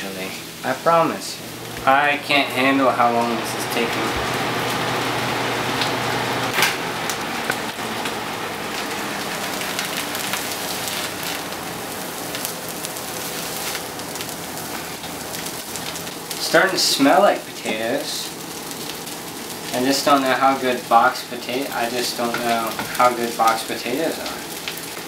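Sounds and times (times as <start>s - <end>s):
potatoes sizzling in a frying pan: 0.0s - 25.0s
sharp crackles: 5.8s - 25.0s.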